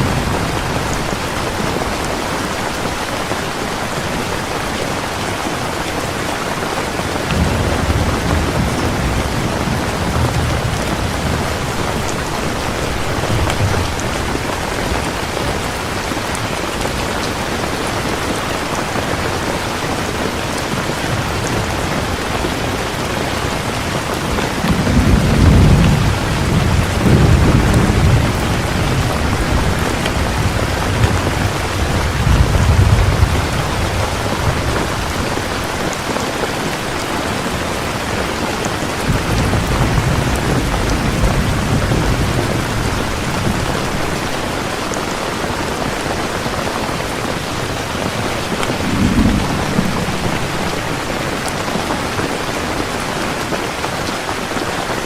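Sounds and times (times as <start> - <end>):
heavy rain falling: 0.0 - 55.0
thunder rolling: 7.2 - 36.1, 37.4 - 44.4, 46.8 - 52.8.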